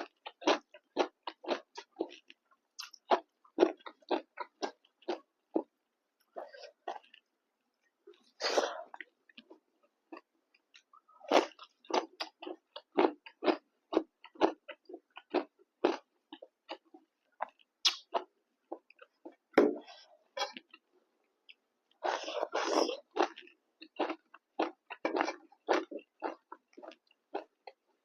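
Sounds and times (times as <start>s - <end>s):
chewing food: 0.0s - 19.5s, 20.3s - 28.0s
noisy mouth sound: 17.8s - 18.1s.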